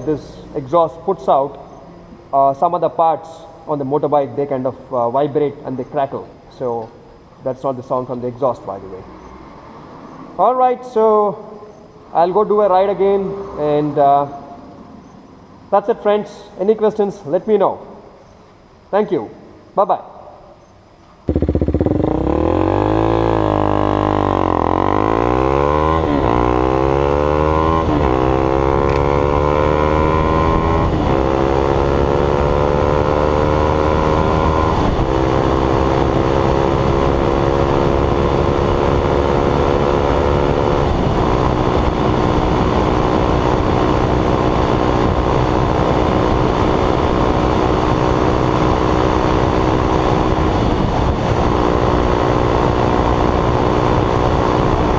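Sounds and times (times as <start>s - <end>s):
motorcycle engine revving: 21.2s - 54.9s.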